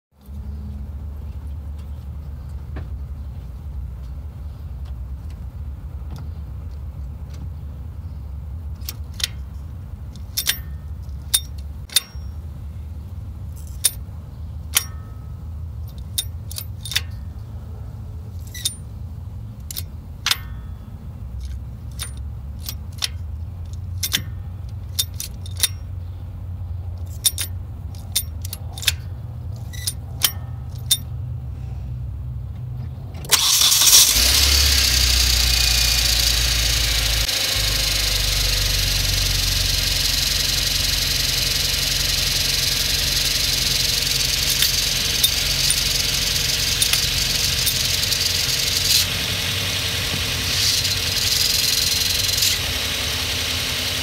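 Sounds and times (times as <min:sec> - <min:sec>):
metallic clicks and rattles: 0:08.7 - 0:12.5, 0:13.5 - 0:14.1, 0:15.8 - 0:17.3, 0:18.4 - 0:18.9, 0:19.6 - 0:20.8, 0:21.4 - 0:26.2, 0:27.0 - 0:31.2, 0:33.2 - 0:53.3
car engine idling: 0:33.3 - 0:54.0.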